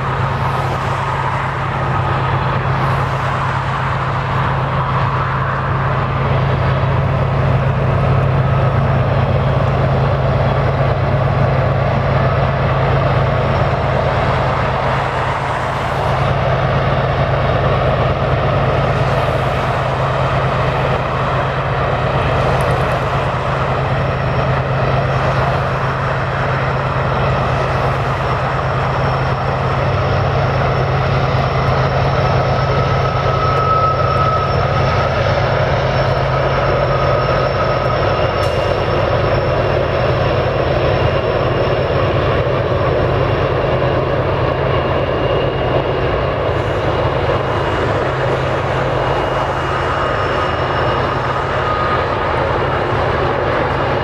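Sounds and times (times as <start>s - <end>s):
diesel locomotive drone: 0.0s - 54.0s
freight cars rolling: 0.0s - 54.0s
faint high whine: 17.2s - 54.0s.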